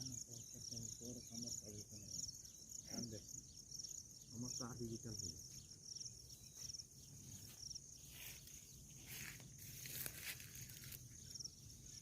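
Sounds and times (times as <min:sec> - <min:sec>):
insect trilling: 0:00.0 - 0:12.0
rustling: 0:08.1 - 0:11.2.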